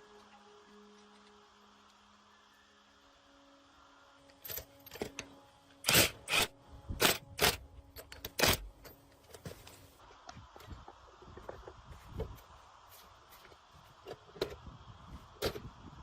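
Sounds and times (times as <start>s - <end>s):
tools and metal parts clanking: 4.3s - 6.4s, 7.0s - 9.9s.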